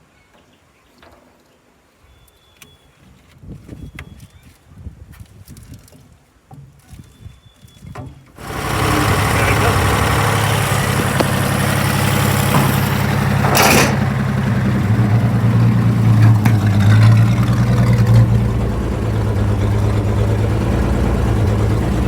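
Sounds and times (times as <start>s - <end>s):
truck engine idling: 8.4s - 22.0s.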